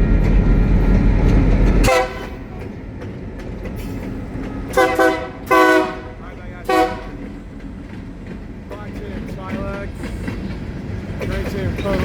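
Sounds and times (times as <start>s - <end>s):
train rumbling past: 0.0s - 12.0s
train horn blast: 1.8s - 2.7s, 4.7s - 7.4s.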